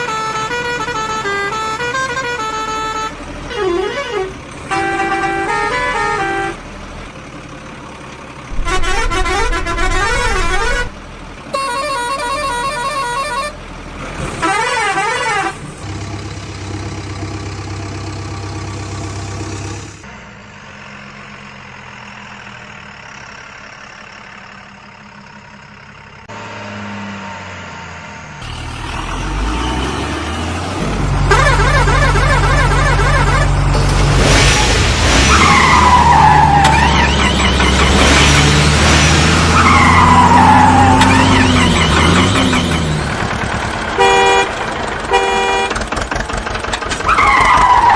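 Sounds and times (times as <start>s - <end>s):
horn blasts: 0.0s - 6.6s, 8.5s - 13.6s, 31.3s - 33.7s, 44.0s - 45.8s
engine hum: 0.0s - 47.9s.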